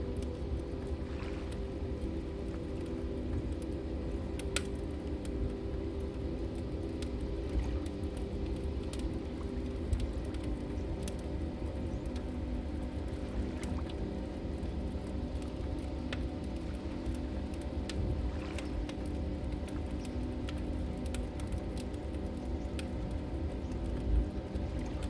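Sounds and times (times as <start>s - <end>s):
low steady rumble: 0.0s - 25.0s
wood fire crackling: 0.0s - 25.0s.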